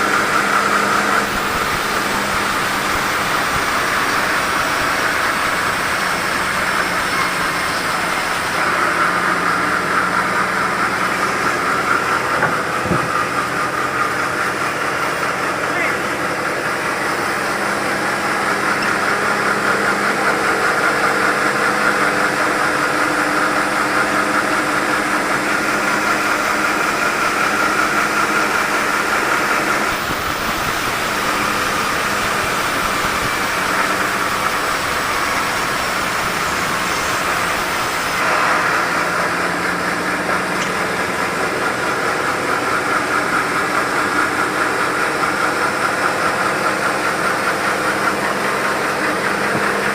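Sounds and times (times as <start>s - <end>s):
sawmill saw cutting logs: 0.0s - 49.9s.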